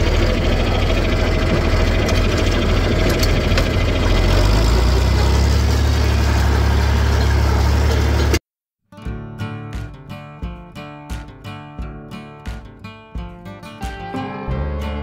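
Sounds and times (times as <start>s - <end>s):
tractor engine running: 0.0s - 8.4s.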